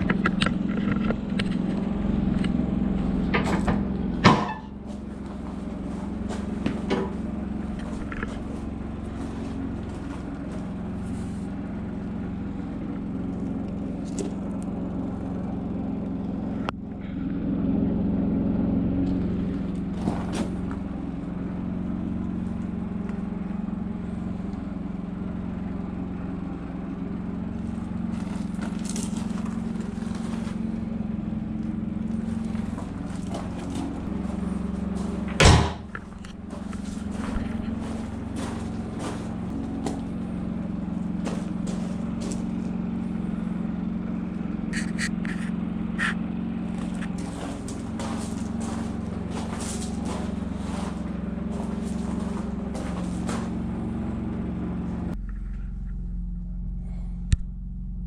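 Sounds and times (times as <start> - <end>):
diesel engine running: 0.0 - 58.0
sharp knock: 35.4 - 35.9.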